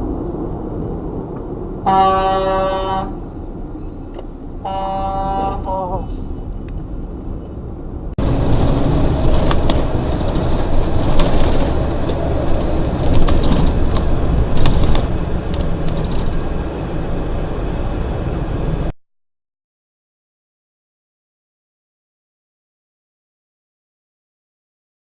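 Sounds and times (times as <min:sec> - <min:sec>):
car road and engine rumble: 0:00.0 - 0:18.9
sharp knocks and clicks: 0:08.2 - 0:16.4.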